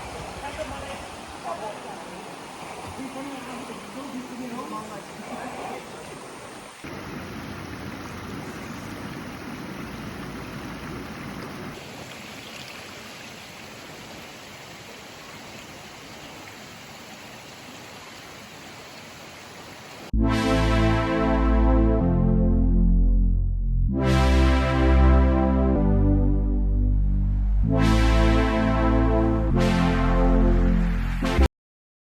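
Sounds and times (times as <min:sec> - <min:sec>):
water rushing in stream: 0:00.0 - 0:20.1
loud music: 0:20.2 - 0:31.5.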